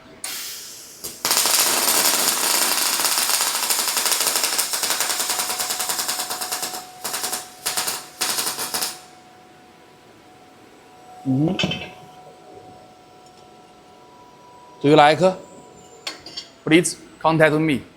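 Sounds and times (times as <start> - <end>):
welding arc crackling: 0.2 - 9.2.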